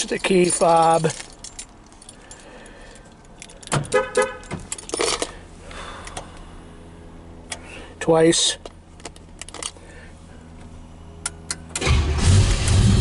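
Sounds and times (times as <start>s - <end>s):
keys jangling: 0.0s - 5.4s, 9.0s - 9.8s
engine starting and idling: 11.5s - 13.0s.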